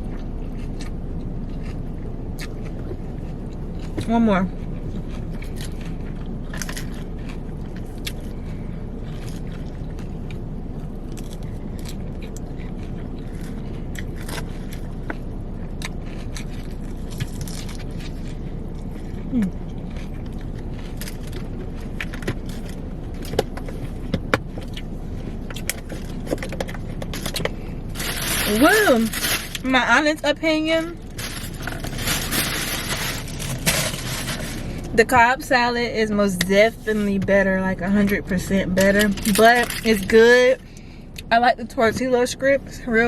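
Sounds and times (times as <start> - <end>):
car engine hum from cabin: 0.0 - 43.0.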